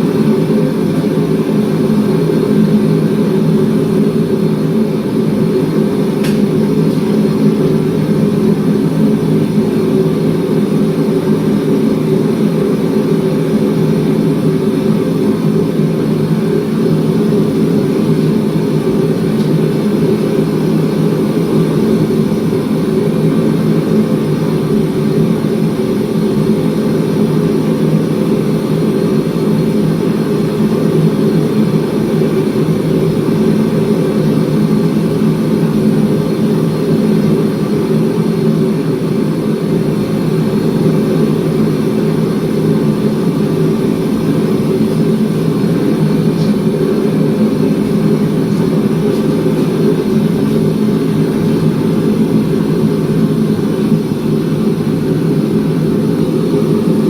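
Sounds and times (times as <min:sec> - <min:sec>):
forge burner roaring: 0:00.0 - 0:57.0.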